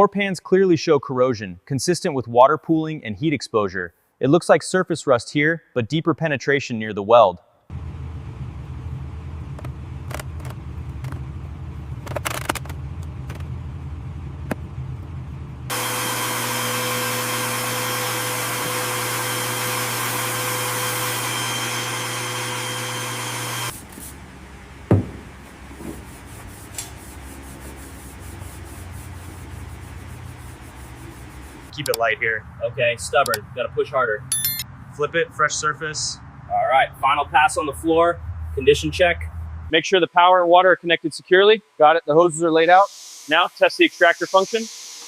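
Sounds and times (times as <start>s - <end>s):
low hum: 7.7s - 15.7s
knocks and scrapes: 9.5s - 11.3s, 12.0s - 13.6s, 24.9s - 31.8s
power tool running: 15.7s - 23.8s, 42.8s - 45.0s
sharp knock: 24.9s - 25.3s.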